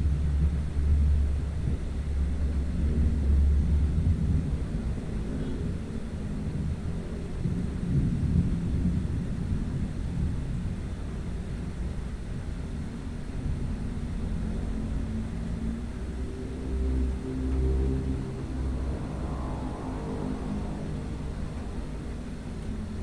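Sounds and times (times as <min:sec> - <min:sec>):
steady low tones: 0:13.0 - 0:23.0
thunder rumbling: 0:13.4 - 0:23.0.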